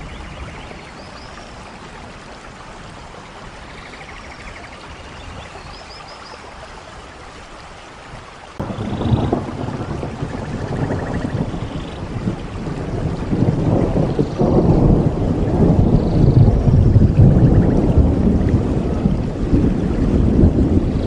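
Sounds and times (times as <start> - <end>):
steady rain: 0.0 - 21.0
low rumble of thunder: 8.6 - 21.0.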